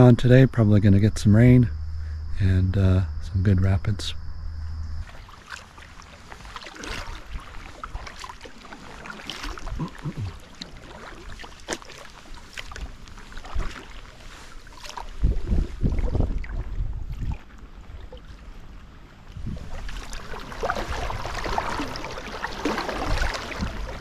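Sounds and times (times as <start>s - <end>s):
paddle dipping through water: 4.6s - 24.0s
small splashes and drips: 5.0s - 18.4s, 19.7s - 24.0s.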